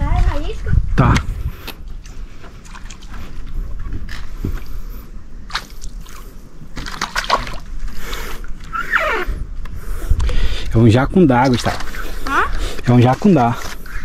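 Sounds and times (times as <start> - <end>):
water splashing: 2.0 - 4.3, 5.5 - 8.8, 11.3 - 14.0.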